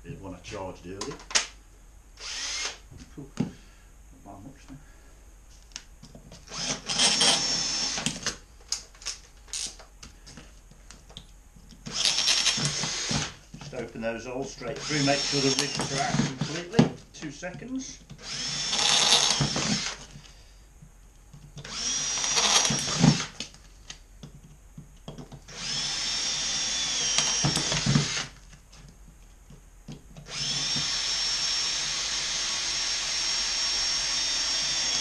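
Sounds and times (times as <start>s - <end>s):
cordless drill whining: 2.2s - 2.8s, 6.5s - 8.4s, 11.8s - 13.8s, 14.6s - 16.9s, 18.1s - 20.4s, 21.6s - 23.4s, 25.5s - 28.4s, 30.2s - 35.0s.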